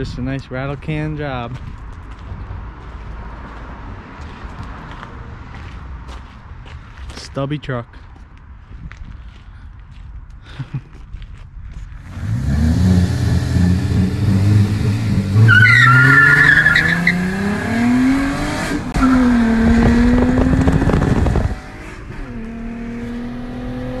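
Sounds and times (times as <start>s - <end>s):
car engine accelerating: 12.0s - 24.0s
tyres squealing: 15.4s - 17.4s.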